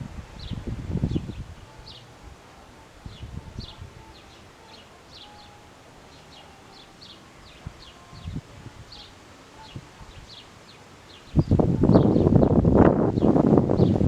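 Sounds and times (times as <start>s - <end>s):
wind thumps on microphone: 0.0s - 2.3s, 11.3s - 14.0s
faint wind hiss: 0.0s - 14.0s
small birds chirping: 0.4s - 14.0s.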